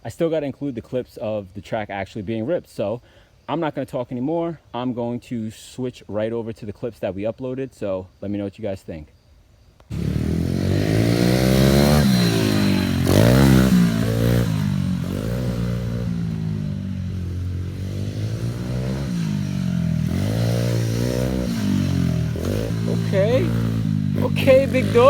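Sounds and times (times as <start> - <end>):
pit bike engine revving: 9.9 - 25.0.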